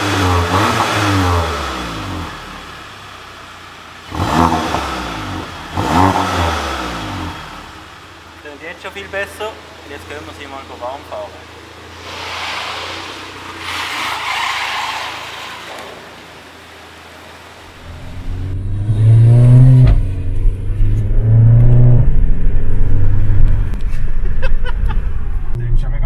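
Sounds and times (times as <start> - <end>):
car engine accelerating hard: 0.0 - 2.9, 4.0 - 7.8, 17.7 - 26.0
tyres rolling hiss: 11.8 - 17.5.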